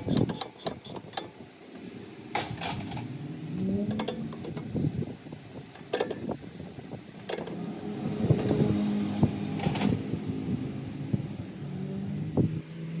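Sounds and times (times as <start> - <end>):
low mechanical hum: 0.0 - 13.0
hand tools clinking on metal: 8.4 - 10.0.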